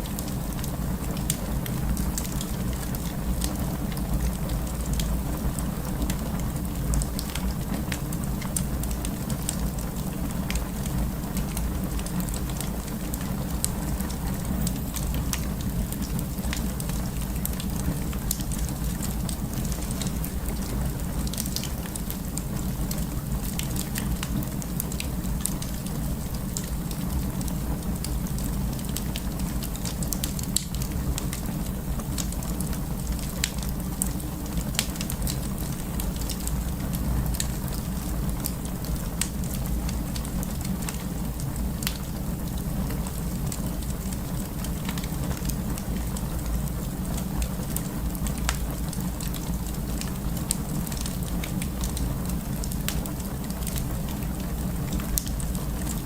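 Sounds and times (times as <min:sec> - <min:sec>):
wood fire crackling: 0:00.0 - 0:56.0
fire pops and snaps: 0:06.0 - 0:56.0.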